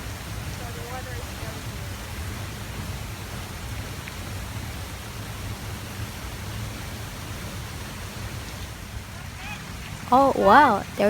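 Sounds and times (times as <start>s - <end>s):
waterfall roaring: 10.1s - 11.0s.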